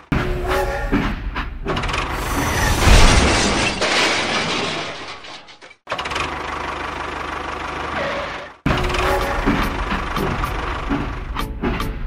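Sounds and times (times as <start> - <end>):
steady engine hum: 6.2 - 12.0.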